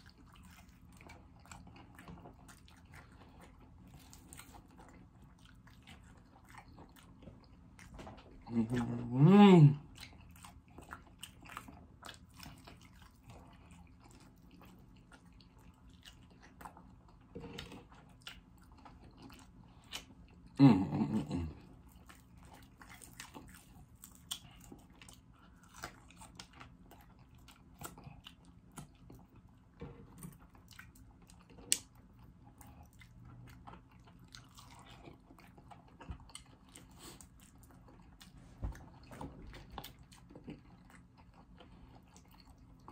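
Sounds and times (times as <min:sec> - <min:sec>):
crunchy chewing: 0:00.0 - 0:09.2, 0:09.8 - 0:20.6, 0:21.5 - 0:42.9
person humming mm: 0:08.5 - 0:09.8, 0:20.6 - 0:21.6.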